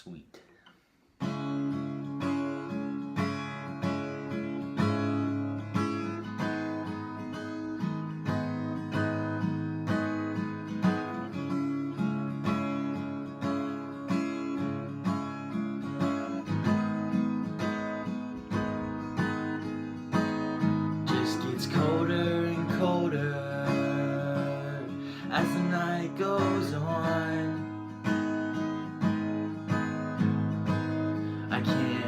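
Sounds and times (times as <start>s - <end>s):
acoustic guitar strumming chords: 1.2s - 32.0s.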